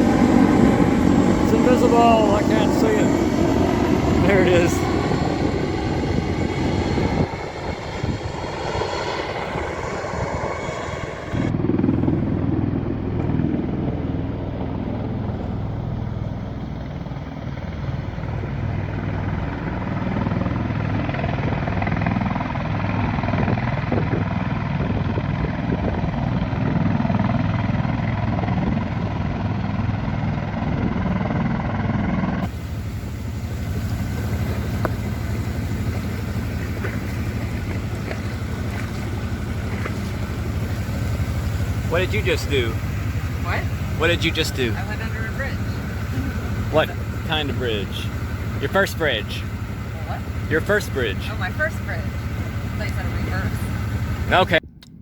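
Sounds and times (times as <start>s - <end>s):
wind noise: 0.0s - 12.4s, 20.2s - 29.6s, 32.4s - 48.6s
boat engine running: 0.0s - 24.6s, 32.4s - 54.8s.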